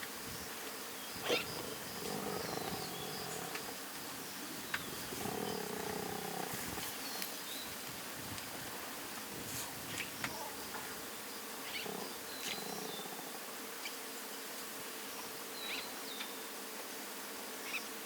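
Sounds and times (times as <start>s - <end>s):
birds chirping faintly: 0.0s - 8.0s, 8.7s - 14.1s
lions calling: 1.2s - 7.0s.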